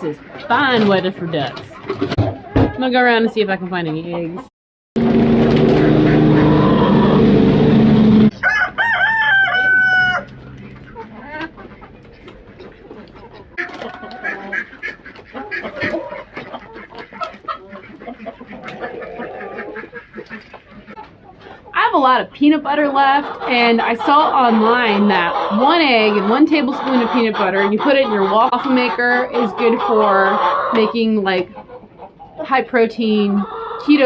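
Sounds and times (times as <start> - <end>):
hens clucking: 0.0 - 4.5, 5.5 - 34.0
rooster crowing: 8.3 - 10.4.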